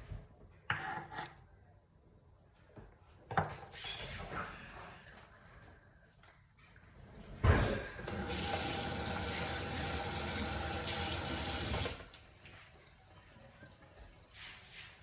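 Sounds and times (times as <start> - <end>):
tap running water into sink: 8.0 - 12.1.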